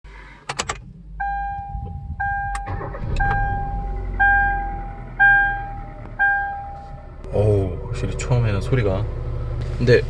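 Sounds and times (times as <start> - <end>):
car engine cranking and idling: 0.1 - 10.0
dashboard warning chime dinging: 1.2 - 7.0.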